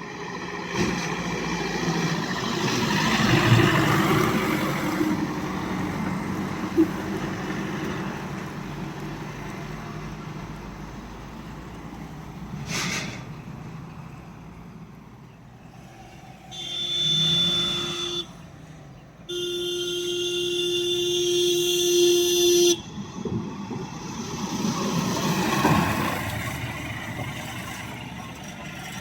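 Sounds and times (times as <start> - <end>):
heavy truck engine rumble: 0.0 - 29.0
truck horn blasts: 16.5 - 18.4, 19.3 - 22.9.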